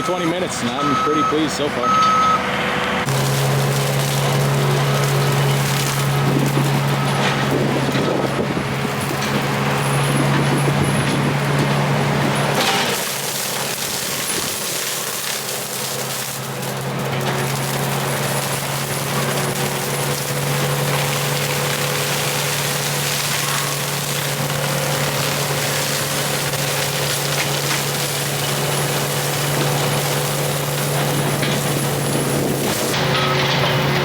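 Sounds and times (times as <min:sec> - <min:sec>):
diesel engine drone: 0:00.0 - 0:34.0
mulcher rushing grinding noise: 0:00.0 - 0:34.0.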